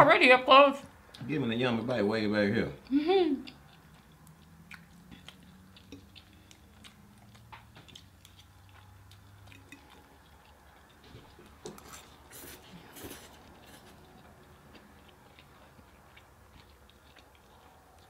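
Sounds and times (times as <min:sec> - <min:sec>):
person chewing food: 0:02.8 - 0:18.0
wet mouth clicks: 0:03.4 - 0:10.3.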